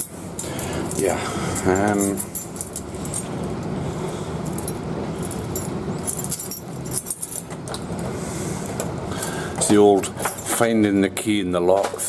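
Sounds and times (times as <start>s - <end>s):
keys jangling: 0.0s - 3.6s, 4.4s - 7.8s.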